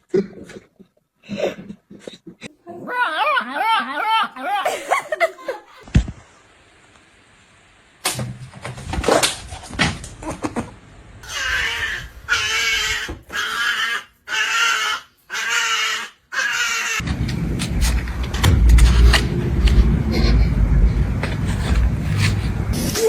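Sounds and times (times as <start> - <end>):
knocks and clicks: 17.0 - 20.0
low rumble: 17.0 - 23.0.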